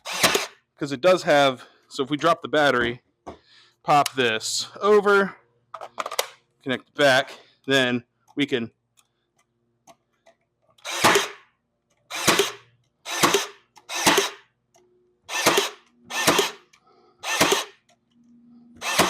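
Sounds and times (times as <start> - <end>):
stapler firing into wood: 10.9 - 11.4, 12.2 - 14.4, 15.4 - 16.6, 17.3 - 17.8.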